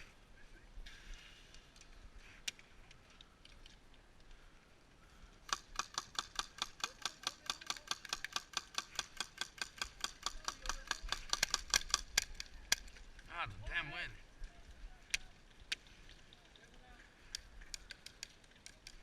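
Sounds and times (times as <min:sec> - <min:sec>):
rapid sharp clicks: 0:05.5 - 0:13.0.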